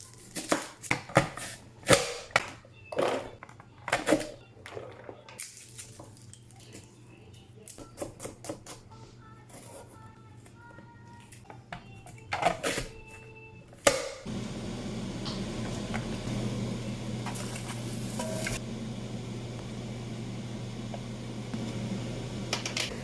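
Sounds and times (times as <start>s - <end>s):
electric kitchen appliance humming: 13.7s - 23.0s.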